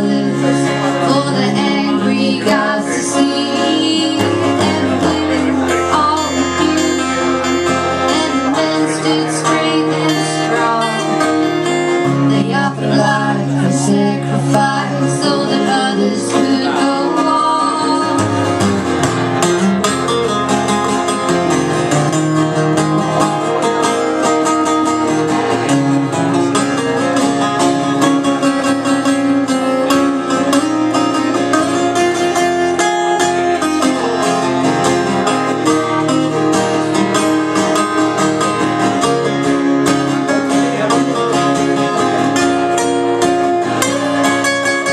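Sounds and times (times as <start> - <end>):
person singing: 0.0 - 18.6
acoustic guitar: 0.0 - 44.9.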